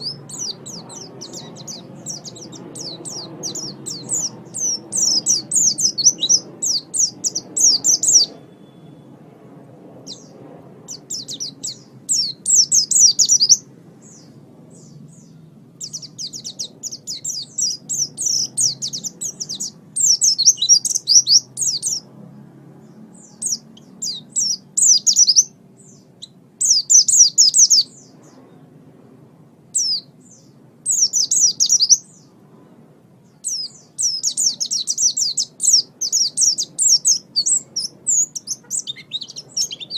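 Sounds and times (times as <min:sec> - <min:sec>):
bird twittering song: 0:00.0 - 0:09.2, 0:10.0 - 0:22.1, 0:22.8 - 0:28.8, 0:29.7 - 0:39.9.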